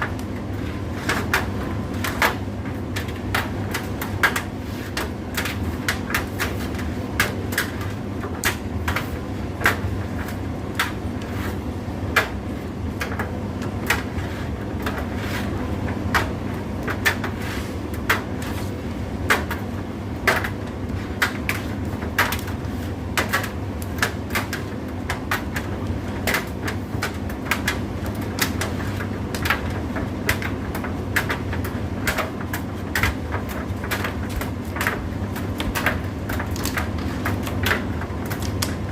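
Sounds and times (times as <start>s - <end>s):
clicks and knocks in dryer: 19.2s - 38.9s.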